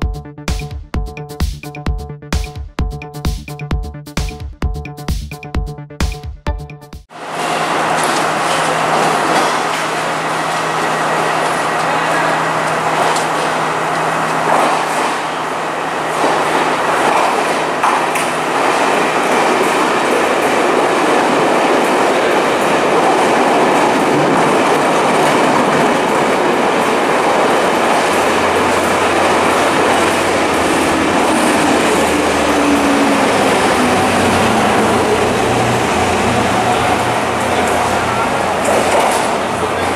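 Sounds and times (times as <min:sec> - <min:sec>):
train wheels rumbling on rails: 0:07.2 - 0:39.9
low drone: 0:27.8 - 0:38.7.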